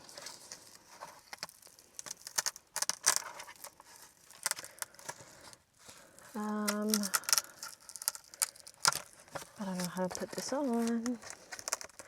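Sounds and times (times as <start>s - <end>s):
packaging crinkling: 0.0s - 12.0s
plastic parts clicking: 6.5s - 12.0s.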